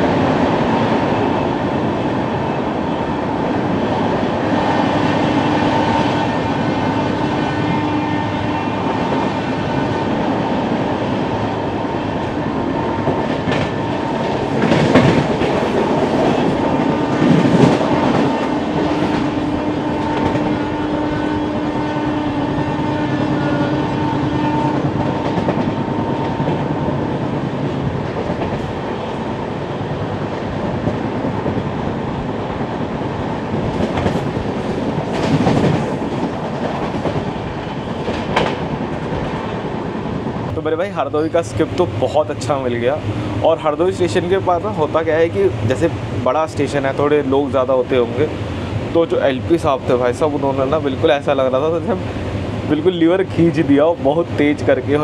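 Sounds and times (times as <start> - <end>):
train wheels rumbling on rails: 0.0 - 55.0
train horn blast: 5.1 - 9.0, 18.7 - 25.4.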